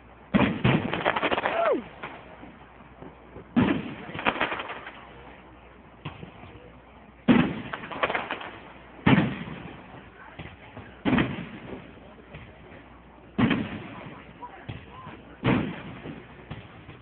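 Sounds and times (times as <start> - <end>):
fireworks bangs: 0.0 - 17.0
fireworks rumble: 0.0 - 17.0
fireworks small pops: 7.3 - 17.0.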